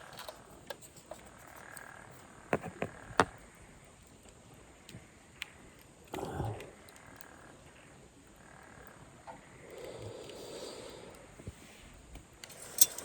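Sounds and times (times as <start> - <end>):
campfire crackling and popping: 3.0 - 12.8.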